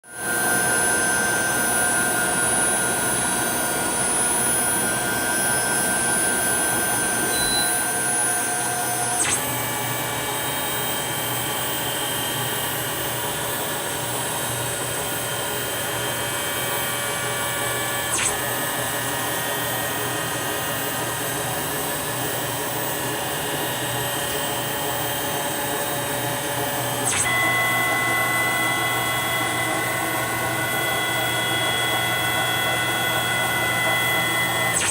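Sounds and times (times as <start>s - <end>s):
lathe spindle whine: 0.1s - 34.9s.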